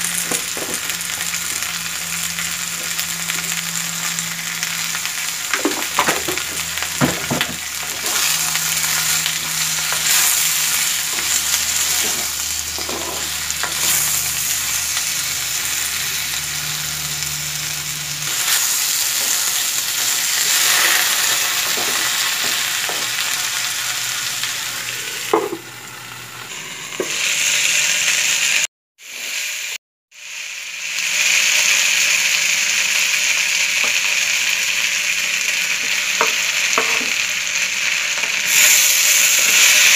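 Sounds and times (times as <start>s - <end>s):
vegetables sizzling in oil: 0.0s - 39.9s
spatula scraping wok: 5.4s - 25.8s.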